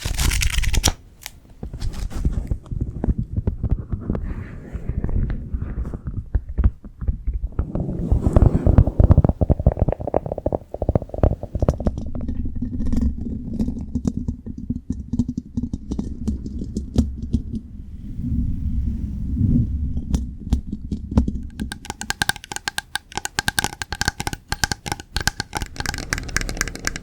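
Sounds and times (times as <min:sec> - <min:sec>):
scratching and rubbing: 0:00.0 - 0:01.0, 0:01.7 - 0:12.1, 0:21.0 - 0:27.0
low rumble: 0:02.4 - 0:13.5, 0:17.0 - 0:21.5.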